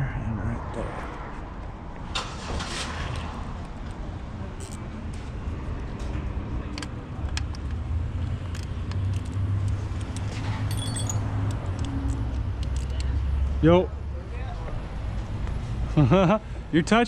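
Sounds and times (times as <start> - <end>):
car engine idling: 2.0 - 5.3
hand tools clinking: 8.5 - 13.0.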